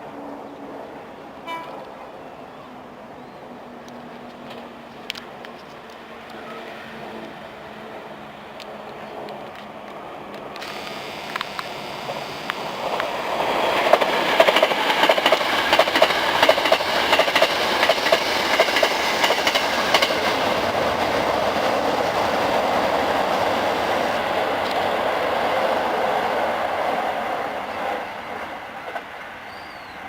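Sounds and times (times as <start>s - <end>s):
electric train passing: 0.0s - 30.0s
train wheels clacking over rail joints: 10.6s - 24.9s.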